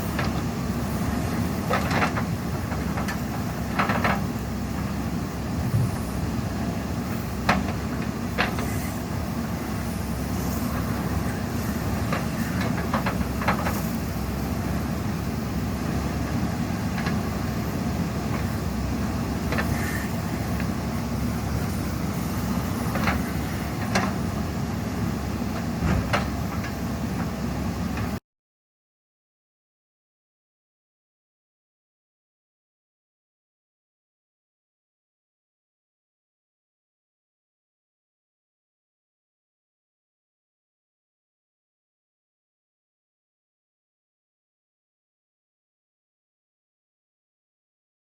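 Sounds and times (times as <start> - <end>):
diesel engine running: 0.0 - 28.2.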